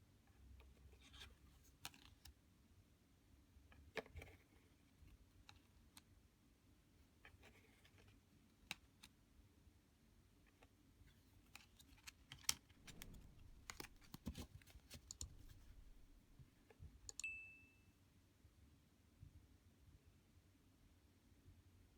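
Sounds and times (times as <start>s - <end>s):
short high ringing tone: 17.2s - 17.9s.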